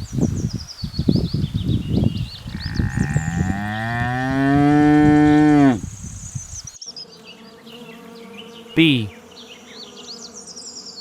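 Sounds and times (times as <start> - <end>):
bull mooing: 2.5 - 5.8.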